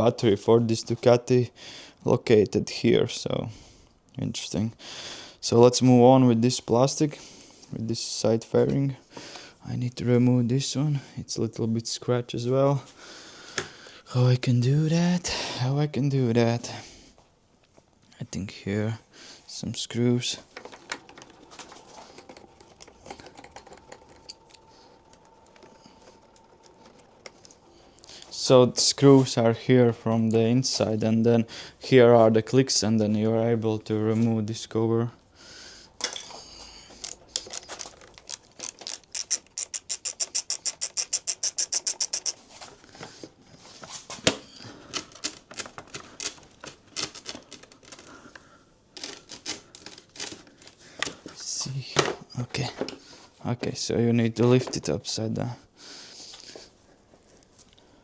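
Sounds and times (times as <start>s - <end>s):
faint steady hum: 16.7s - 32.2s
tools and plastic rattling: 20.4s - 28.4s, 36.0s - 53.2s
tool clicking and tapping on plastic: 37.0s - 42.4s.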